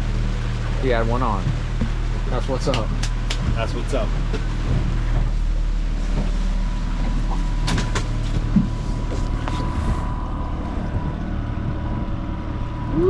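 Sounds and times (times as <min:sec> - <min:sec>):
motorboat engine running: 0:00.0 - 0:13.0
thin steady whine: 0:03.8 - 0:13.0.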